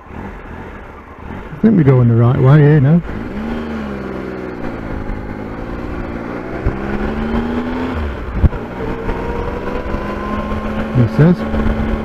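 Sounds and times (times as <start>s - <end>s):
motorcycle engine running: 0.0s - 12.0s
wind noise: 4.6s - 12.0s.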